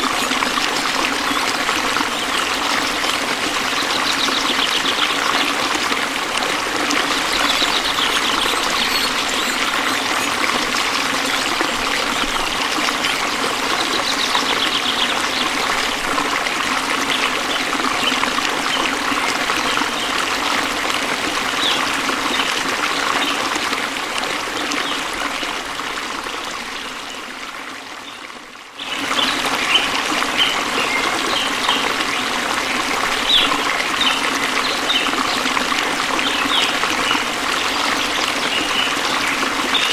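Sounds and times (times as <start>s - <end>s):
waterfall rushing: 0.0s - 28.2s.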